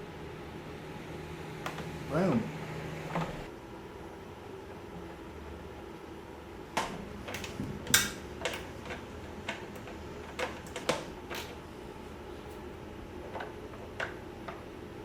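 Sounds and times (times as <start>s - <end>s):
clicks and knocks of tools: 6.8s - 11.6s.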